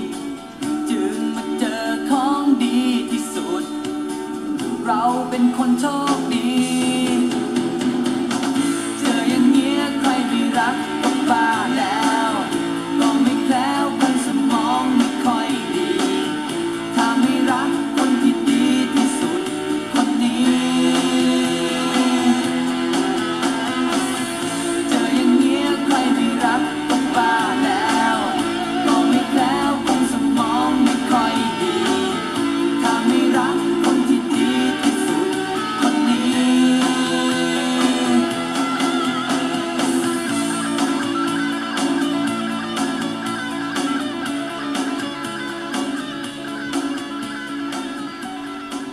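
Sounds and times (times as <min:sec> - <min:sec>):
person singing: 0:00.0 - 0:03.9, 0:04.8 - 0:07.8, 0:08.7 - 0:40.8
guitar: 0:00.0 - 0:48.9.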